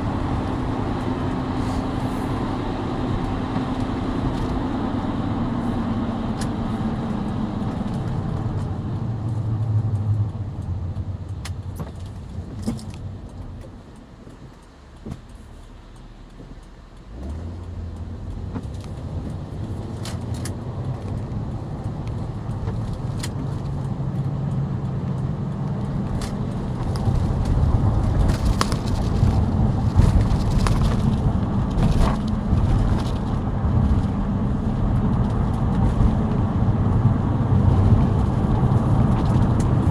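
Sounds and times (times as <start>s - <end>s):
car engine: 0.0s - 39.9s
car tyres road roar: 0.0s - 39.9s
light clicks and rattles: 7.8s - 33.3s.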